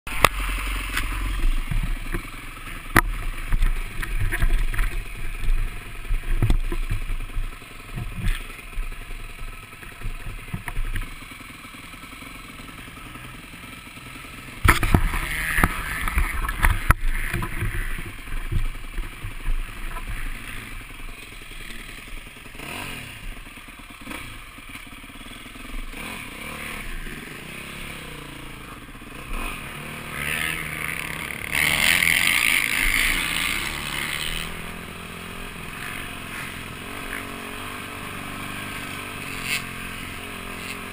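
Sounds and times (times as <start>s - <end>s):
motocross bike engine: 0.0s - 40.9s
knocks and clatter over bumps: 0.1s - 11.4s, 14.6s - 26.1s.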